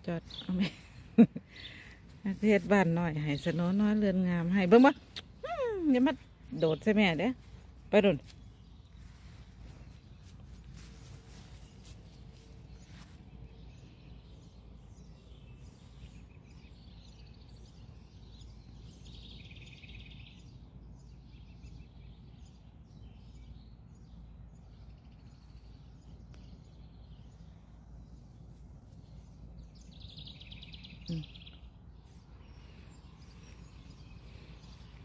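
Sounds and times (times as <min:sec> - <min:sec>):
faint low background rumble: 0:00.0 - 0:35.0
songbirds chirping: 0:00.0 - 0:35.0.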